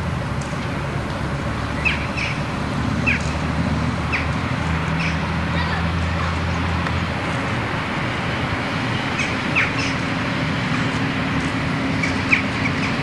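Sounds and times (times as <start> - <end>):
traffic hum: 0.0 - 13.0
birds chirping: 1.7 - 3.3, 4.0 - 5.3, 9.0 - 10.1, 11.9 - 13.0.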